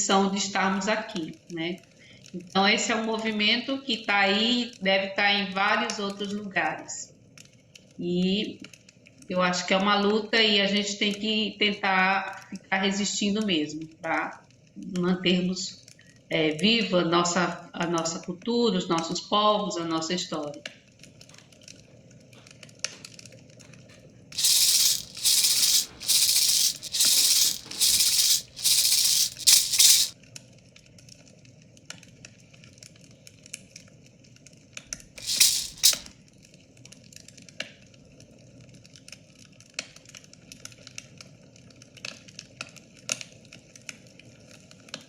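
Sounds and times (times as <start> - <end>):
hand rattle shaking: 24.4 - 30.1, 35.2 - 36.1.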